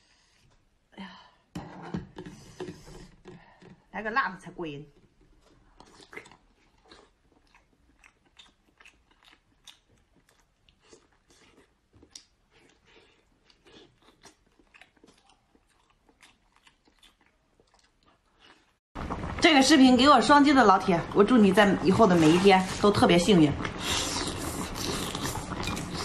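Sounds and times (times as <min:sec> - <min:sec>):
person chewing: 0:05.3 - 0:18.8, 0:23.6 - 0:26.0.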